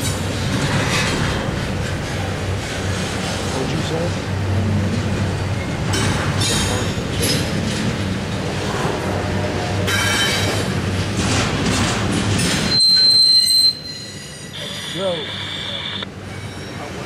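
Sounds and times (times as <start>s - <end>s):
train wheels rumbling on rail: 0.0s - 15.2s, 16.1s - 17.0s
high-pitched wheel squeals: 12.7s - 16.9s.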